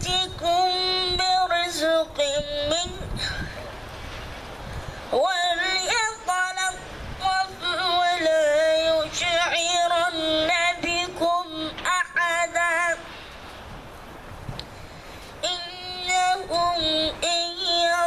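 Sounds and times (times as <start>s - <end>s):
boy chanting recitation: 0.0s - 3.4s, 5.1s - 13.1s, 15.4s - 18.0s.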